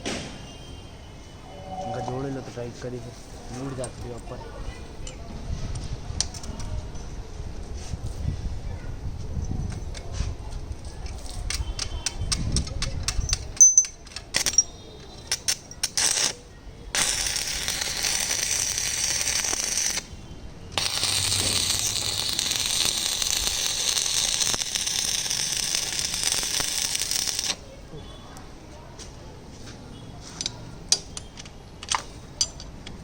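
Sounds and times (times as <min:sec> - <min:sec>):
electric arc welding crackle: 0:16.0 - 0:16.4, 0:17.0 - 0:20.1, 0:20.8 - 0:27.6
sputtering clicks of arc striking: 0:20.8 - 0:27.6.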